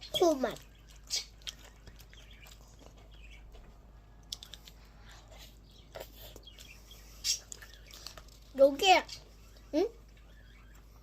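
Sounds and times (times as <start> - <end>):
person chewing ice cream: 0.6 - 8.5.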